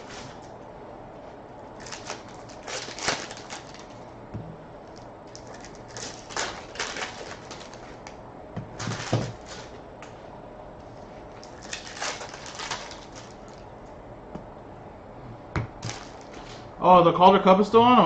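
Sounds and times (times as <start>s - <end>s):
cards and wrappers rustling: 1.8s - 4.1s, 5.3s - 8.1s, 11.4s - 13.6s, 15.8s - 16.7s.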